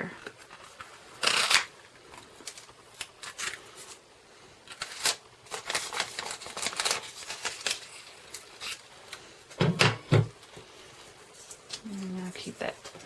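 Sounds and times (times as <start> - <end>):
paper rustling: 4.7 - 9.3.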